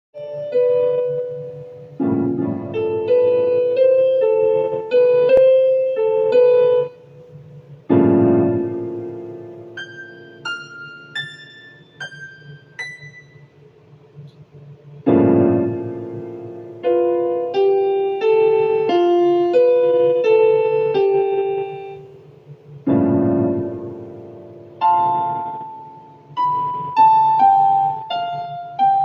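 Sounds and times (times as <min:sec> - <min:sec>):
piano music: 0:00.2 - 0:13.9, 0:14.9 - 0:29.0.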